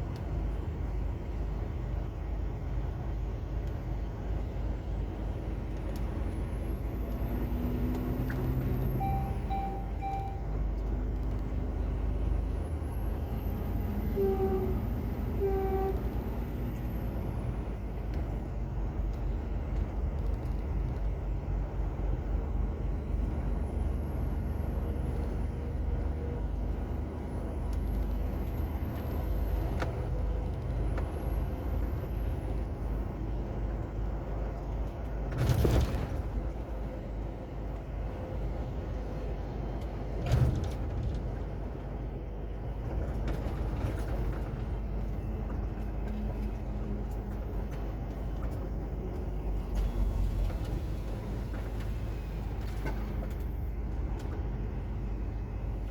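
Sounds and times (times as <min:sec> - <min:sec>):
diesel truck engine rumbling: 0:00.0 - 0:55.9
short beeps: 0:09.0 - 0:10.6.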